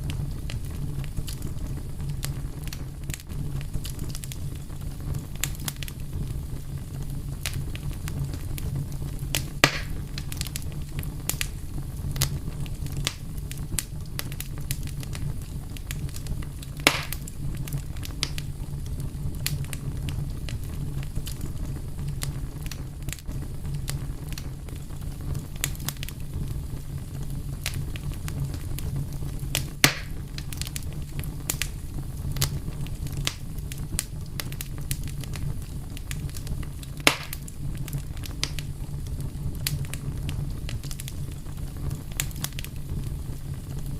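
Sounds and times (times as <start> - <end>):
fire crackling: 0.0 - 43.9
fire popping: 0.0 - 43.9.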